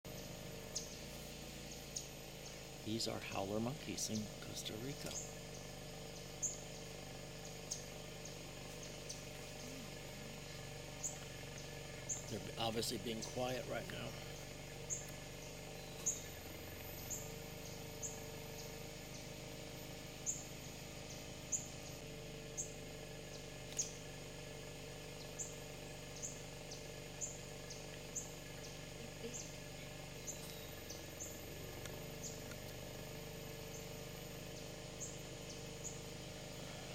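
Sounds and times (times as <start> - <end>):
faint background hum: 0.1 - 36.9
bird chip notes: 25.0 - 36.8.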